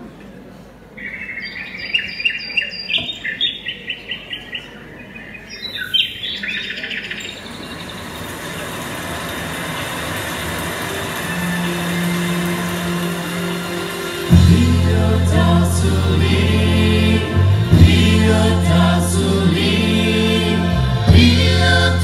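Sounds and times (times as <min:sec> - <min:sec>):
steady sound: 0:07.2 - 0:22.0.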